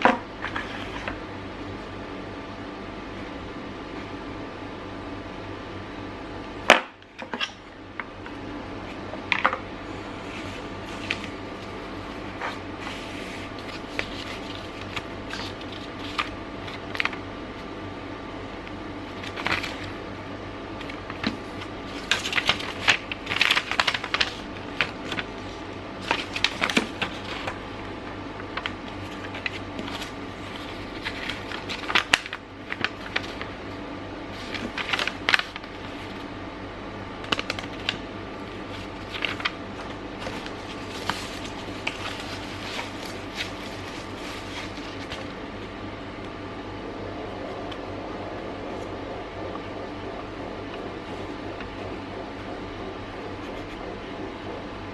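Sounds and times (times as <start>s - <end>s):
faint hum: 0.0s - 54.9s
packaging crinkling and clicking: 28.5s - 33.5s, 37.2s - 38.0s.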